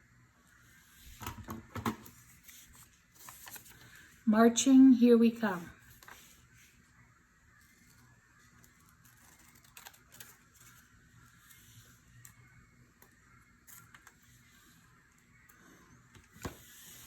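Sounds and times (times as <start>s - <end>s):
taps and clicks handling paper: 8.6s - 10.8s.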